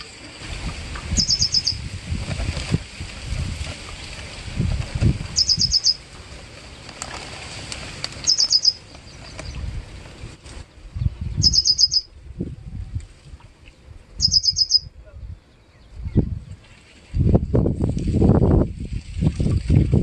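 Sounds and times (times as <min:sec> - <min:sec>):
bird calling high notes: 0:01.2 - 0:01.8, 0:08.2 - 0:08.8, 0:11.4 - 0:12.1, 0:14.2 - 0:14.9.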